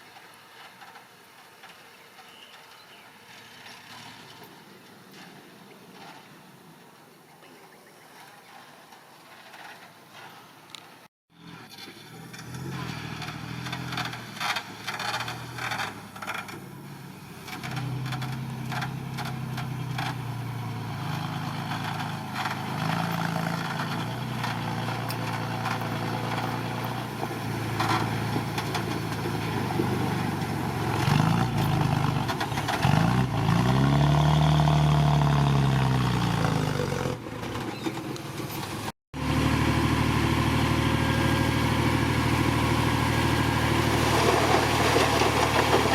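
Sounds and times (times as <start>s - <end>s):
heavy diesel engine under load: 8.7s - 45.9s.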